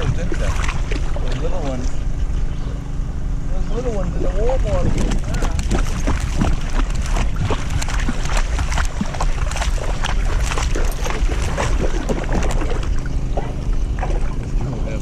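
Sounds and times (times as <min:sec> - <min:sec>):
dog splashing through water: 0:00.0 - 0:01.8, 0:04.8 - 0:14.4
low microphone rumble: 0:00.0 - 0:15.0.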